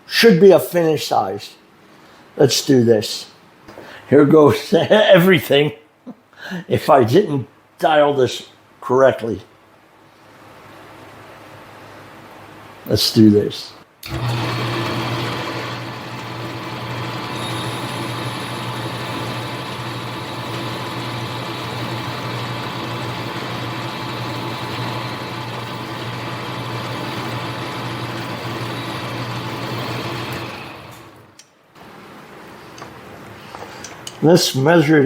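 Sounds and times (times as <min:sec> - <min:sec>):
metal lathe motor hum: 0:14.0 - 0:31.3.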